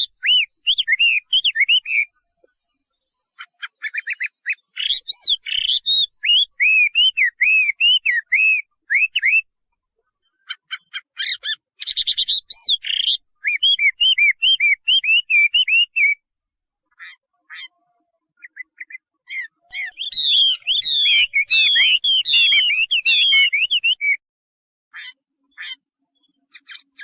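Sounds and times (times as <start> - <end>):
bird singing whistles: 0.0 - 2.6, 3.2 - 9.5, 10.5 - 16.3, 18.4 - 24.2, 26.5 - 27.0.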